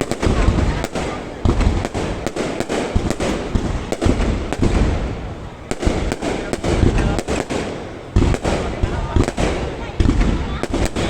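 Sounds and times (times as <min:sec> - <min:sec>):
fireworks bangs and booms: 0:00.0 - 0:11.0.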